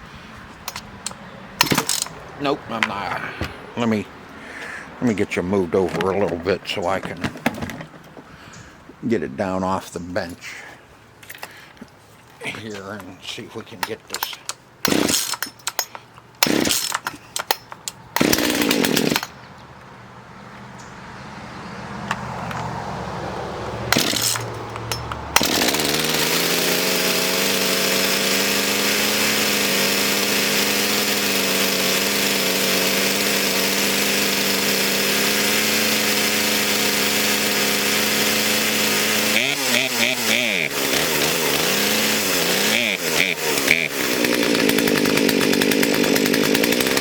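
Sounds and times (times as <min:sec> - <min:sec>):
chainsaw starting and running: 0:00.7 - 0:03.1, 0:13.7 - 0:17.6, 0:18.2 - 0:19.4, 0:23.8 - 0:47.0.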